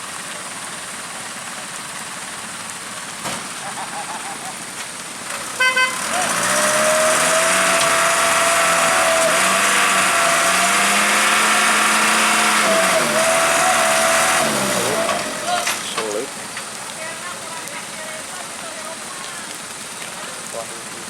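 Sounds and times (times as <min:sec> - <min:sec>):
truck diesel engine revving: 0:05.2 - 0:16.4
horn beeps: 0:05.6 - 0:06.3.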